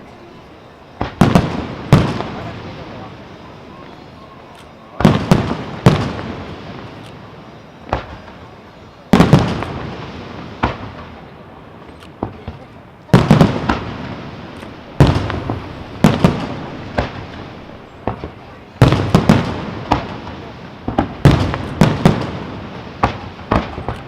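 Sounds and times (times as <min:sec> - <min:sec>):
fireworks bursting with loud bangs: 0:00.0 - 0:24.0
small firework pops: 0:01.0 - 0:03.1, 0:03.8 - 0:24.0
echoing rumble: 0:13.3 - 0:19.9.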